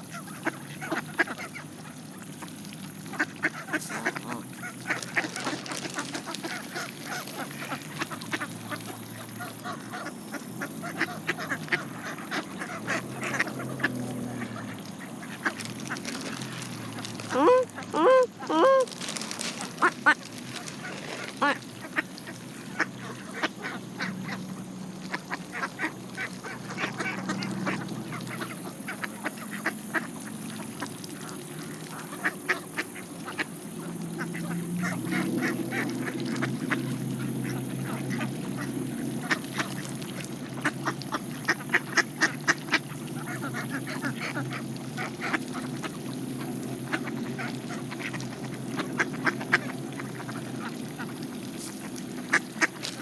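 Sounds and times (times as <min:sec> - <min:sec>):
soft duck quacks: 0:03.1 - 0:16.0, 0:17.3 - 0:30.1.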